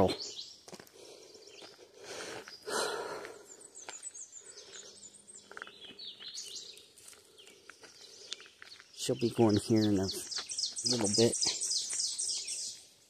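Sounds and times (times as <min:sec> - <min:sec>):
outdoor background noise: 0:00.0 - 0:13.0
small bird chirping: 0:03.4 - 0:13.0.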